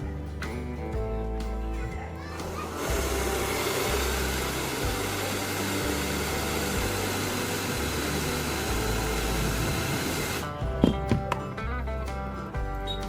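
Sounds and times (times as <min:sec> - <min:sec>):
background music with bass line: 0:00.0 - 0:13.0
hair dryer blowing: 0:02.5 - 0:10.5.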